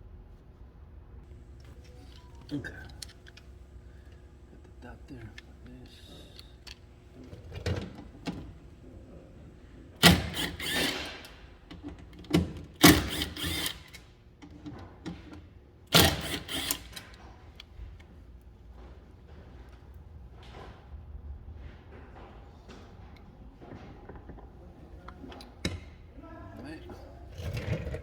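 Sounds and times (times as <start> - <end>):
power driver running: 10.0 - 11.3, 12.6 - 14.0, 15.9 - 17.2.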